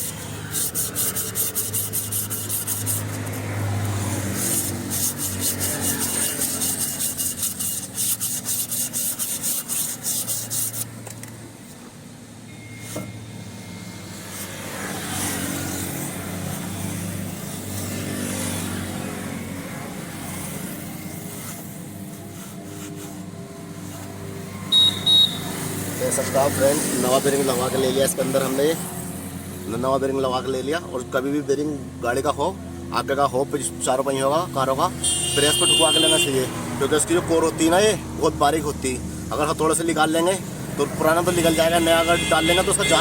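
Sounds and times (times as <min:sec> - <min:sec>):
hand rubbing strokes on metal: 0:00.0 - 0:11.8, 0:14.0 - 0:19.0, 0:20.1 - 0:24.4.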